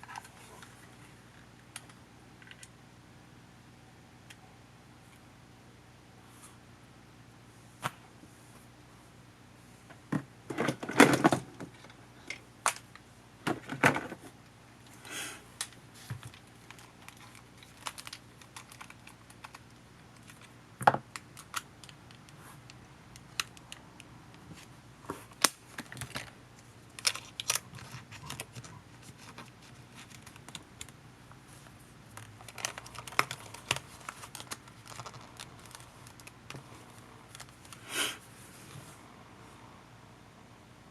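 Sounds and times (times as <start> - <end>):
plastic parts clicking and tapping: 15.6 - 19.6, 25.4 - 26.3, 32.1 - 36.6.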